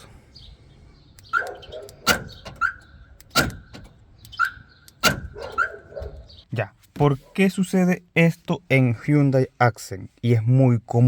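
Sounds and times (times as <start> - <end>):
door lock clacking: 1.2 - 6.3.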